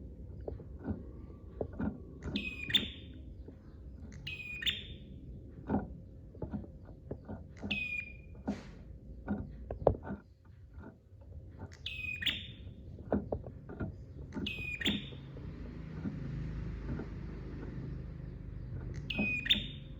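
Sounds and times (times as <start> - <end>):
bird high rapid chirps: 2.4 - 3.2, 4.1 - 5.1, 11.8 - 12.8, 14.4 - 15.3, 18.9 - 19.9.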